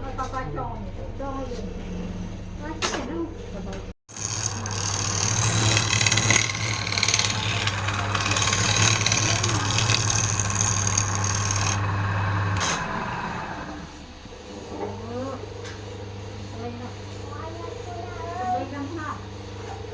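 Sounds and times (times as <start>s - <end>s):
turning tool scraping wood: 4.1s - 14.0s
wood lathe motor hum: 4.1s - 14.3s.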